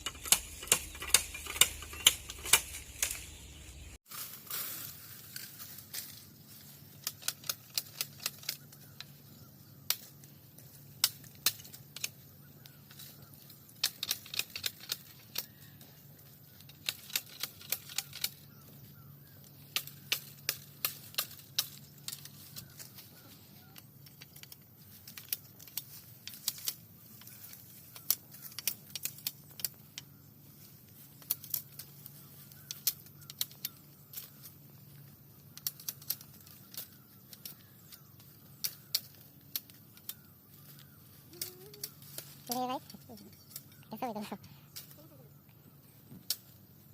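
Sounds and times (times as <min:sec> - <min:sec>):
sharp clicks and taps: 0:00.0 - 0:03.2.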